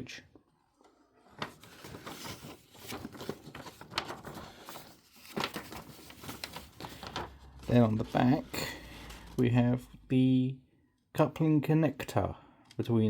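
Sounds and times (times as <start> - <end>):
paper rustling and crinkling: 0.7 - 9.6.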